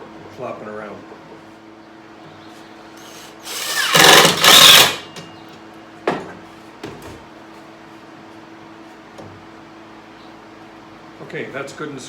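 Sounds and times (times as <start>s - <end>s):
power drill driving screw into wood: 3.0s - 5.2s.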